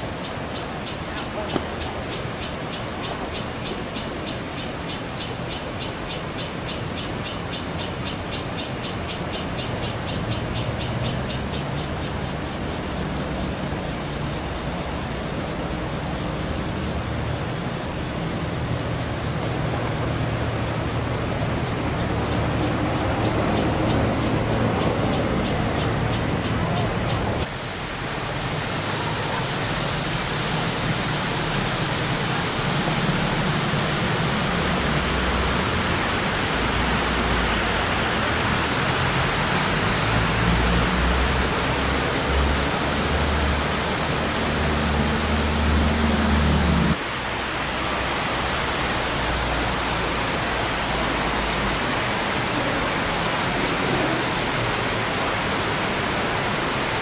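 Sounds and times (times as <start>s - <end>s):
falling water rushing: 0.0s - 57.0s.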